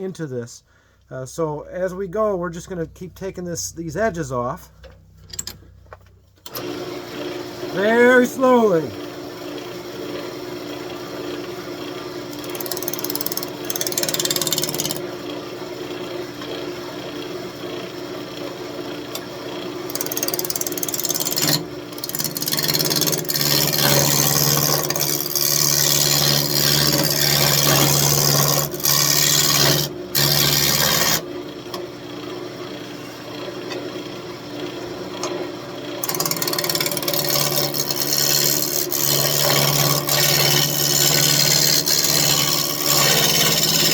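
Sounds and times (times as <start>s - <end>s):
lathe motor hum: 6.5s - 15.0s, 15.8s - 43.9s
turning tool rasping on wood: 12.3s - 15.0s, 19.9s - 31.2s, 36.0s - 43.9s.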